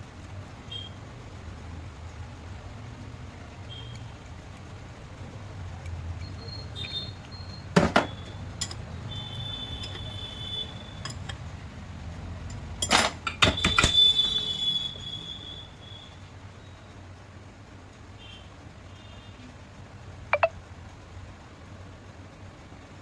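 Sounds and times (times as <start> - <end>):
metal tools clinking and ringing: 8.6 - 8.9, 12.5 - 13.5.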